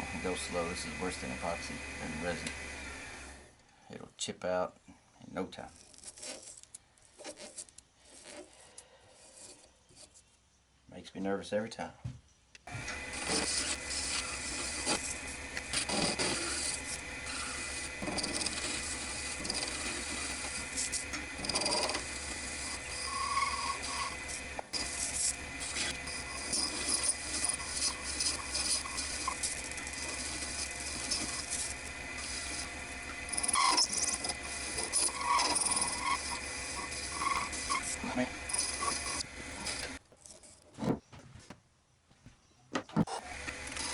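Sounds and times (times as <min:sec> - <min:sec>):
lathe humming: 0:00.0 - 0:03.5, 0:12.7 - 0:40.0, 0:43.1 - 0:43.9
tool scraping spinning acrylic: 0:00.0 - 0:03.5, 0:05.6 - 0:10.3, 0:12.8 - 0:40.9, 0:43.0 - 0:43.9.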